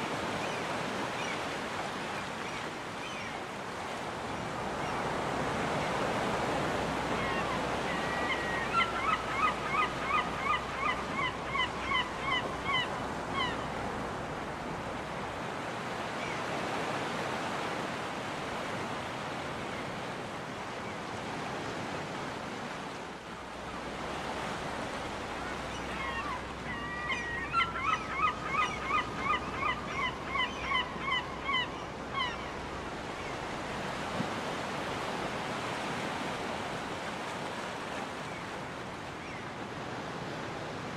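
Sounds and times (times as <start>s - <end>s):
gull calling: 7.2s - 13.7s, 25.5s - 32.6s.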